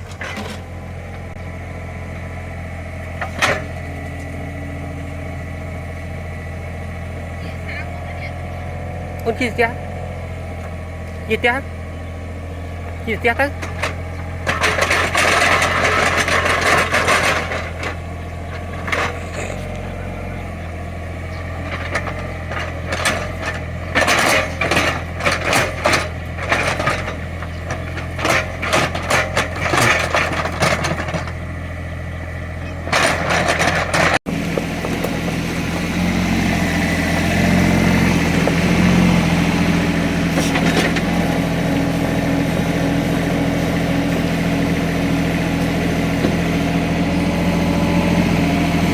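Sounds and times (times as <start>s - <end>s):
bucket clanking and scraping soil: 0.0s - 1.3s, 13.0s - 31.5s, 32.7s - 48.9s
excavator diesel engine running: 0.0s - 48.9s.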